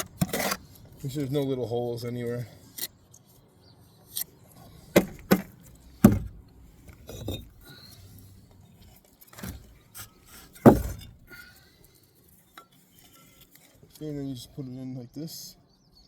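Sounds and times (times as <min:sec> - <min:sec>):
trowel scraping wet mortar: 0:00.0 - 0:01.5, 0:12.3 - 0:14.1
trowel knocking on brick: 0:05.0 - 0:06.4, 0:10.6 - 0:11.3.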